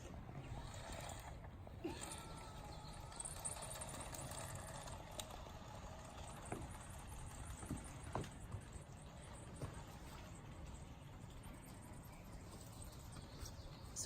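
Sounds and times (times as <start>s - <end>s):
model train rumbling: 0.0s - 9.6s.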